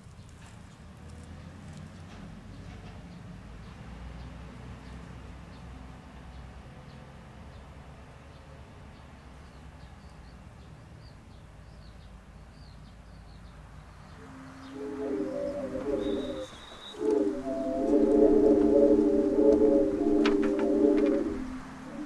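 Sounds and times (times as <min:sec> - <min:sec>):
ceramic wind instruments hooting: 0:14.1 - 0:22.0
faint bird chirps: 0:14.1 - 0:22.0.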